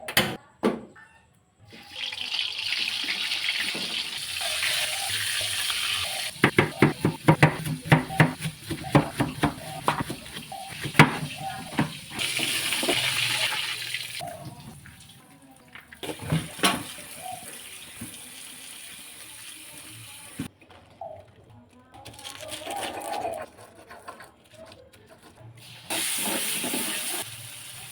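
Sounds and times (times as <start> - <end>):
water running from tap: 1.8 - 8.0, 11.2 - 15.1.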